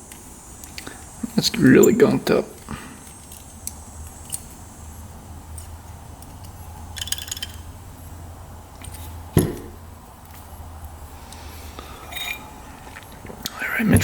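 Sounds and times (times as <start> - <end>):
steady low hum: 0.0 - 14.0
metal parts clinking on bench: 6.3 - 7.7, 12.1 - 12.4.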